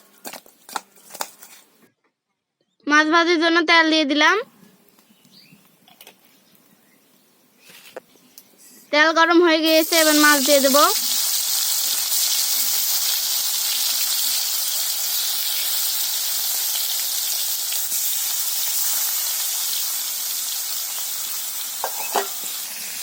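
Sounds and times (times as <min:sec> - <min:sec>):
fish frying in hot oil: 0:09.7 - 0:23.0.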